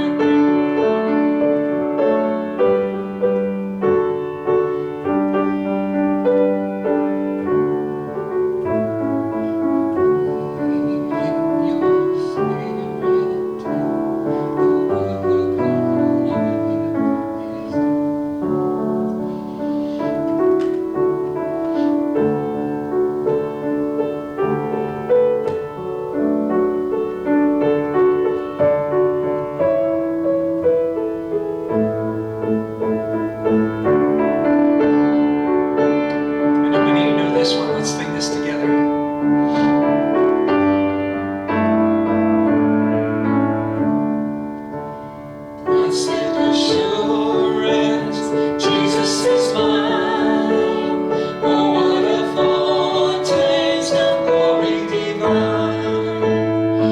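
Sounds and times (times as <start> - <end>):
slow gentle piano piece: 0.0 - 56.9.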